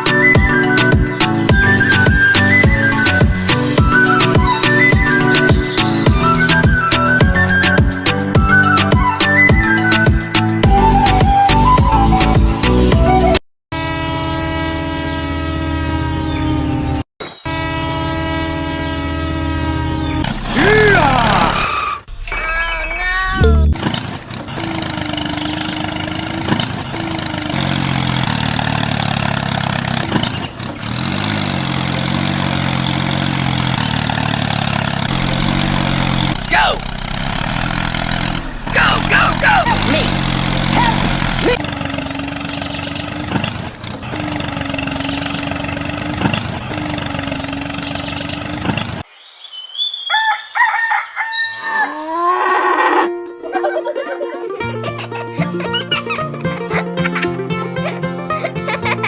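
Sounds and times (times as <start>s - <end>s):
pitched hum: 31.3s - 49.0s
rooster crowing: 49.9s - 52.6s.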